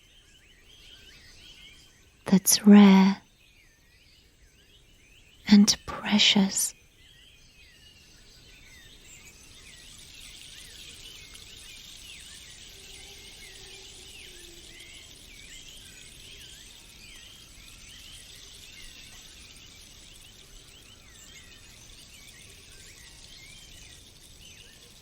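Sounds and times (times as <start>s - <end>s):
small birds chirping: 0.0s - 25.0s
high insect hiss: 8.0s - 25.0s.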